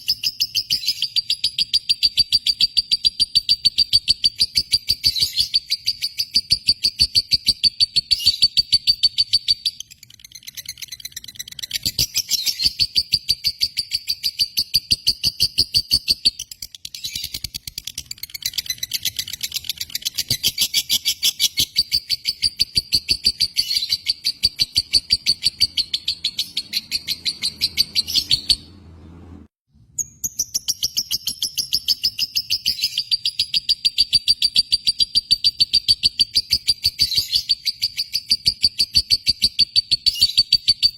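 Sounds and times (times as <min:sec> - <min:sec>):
lovebird chattering: 0:00.0 - 0:28.6.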